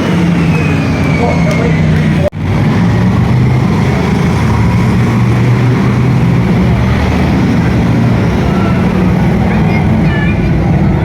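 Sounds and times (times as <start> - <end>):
stock car engines running loudly: 0.0 - 11.0.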